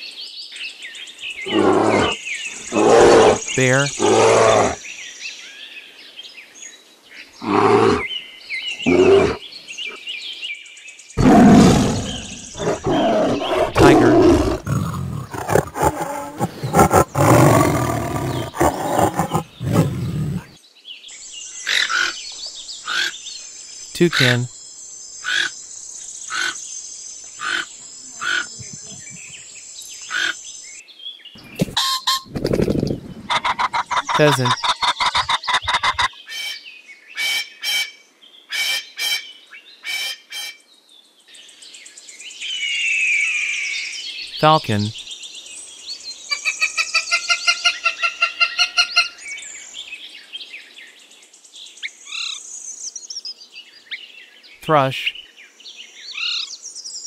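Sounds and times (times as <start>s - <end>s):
bear calling: 1.4s - 4.8s, 7.4s - 8.1s, 8.8s - 9.4s, 11.2s - 20.6s, 33.3s - 36.0s
tiger growling and roaring: 1.4s - 4.8s, 7.4s - 8.1s, 8.8s - 9.4s, 11.2s - 20.6s
toucan calling: 31.4s - 32.3s, 33.3s - 36.6s, 46.3s - 49.2s.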